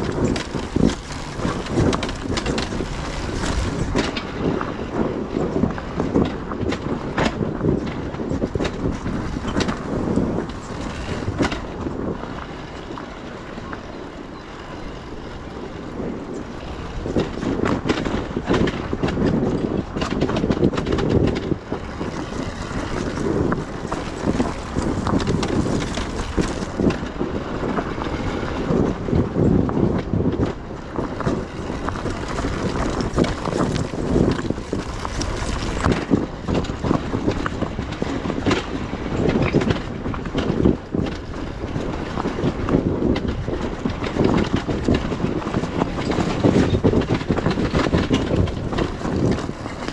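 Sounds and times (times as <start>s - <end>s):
motorcycle engine rumble: 0.0s - 13.9s, 15.8s - 28.1s, 28.7s - 38.5s
bike rattling and knocking: 0.0s - 14.2s, 15.7s - 49.9s
wind buffeting microphone: 0.0s - 49.9s.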